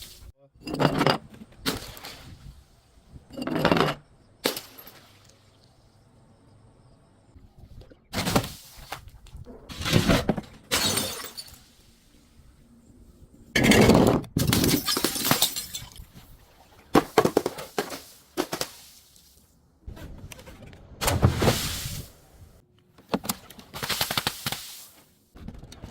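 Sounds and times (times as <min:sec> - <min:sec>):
glass crushing and breaking: 0:10.6 - 0:11.7, 0:13.6 - 0:16.1.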